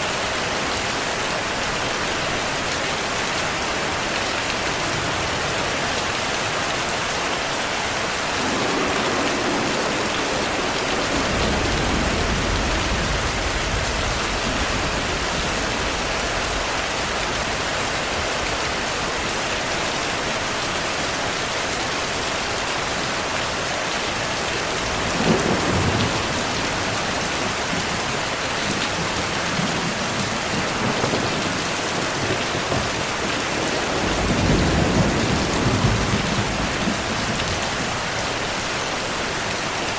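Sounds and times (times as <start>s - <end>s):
heavy rain falling: 0.0s - 39.9s
thunder rumbling: 8.0s - 18.7s, 24.7s - 38.5s
sharp thunderclap: 8.4s - 16.7s, 24.9s - 37.9s.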